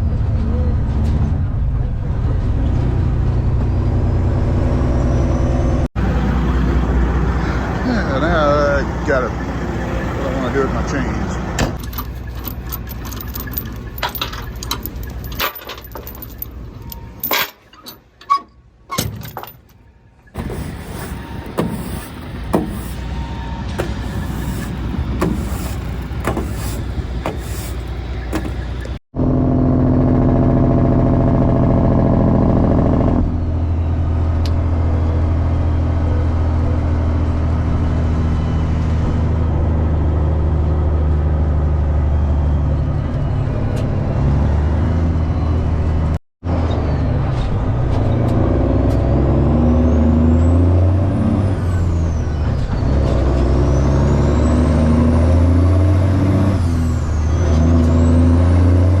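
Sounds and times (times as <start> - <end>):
truck engine with deep exhaust: 0.0 - 17.3, 20.2 - 59.0
knocks and clanks: 11.6 - 19.8, 20.4 - 29.0.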